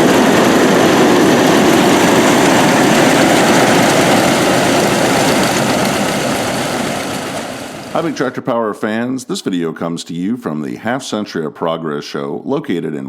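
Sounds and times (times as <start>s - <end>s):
heavy farm machinery engine clattering: 0.0s - 8.2s.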